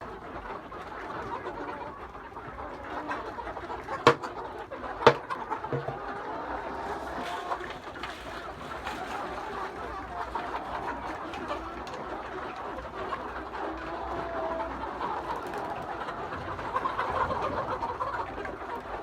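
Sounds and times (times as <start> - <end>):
chickens clucking: 0.0 - 19.0
sharp knocks: 4.1 - 4.3, 5.1 - 6.1.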